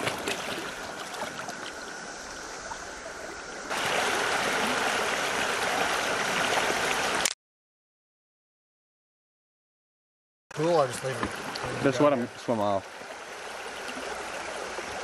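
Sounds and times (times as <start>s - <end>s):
faint water splashes: 0.0s - 7.3s, 10.6s - 15.0s
river water flowing: 0.0s - 7.3s, 10.6s - 15.0s.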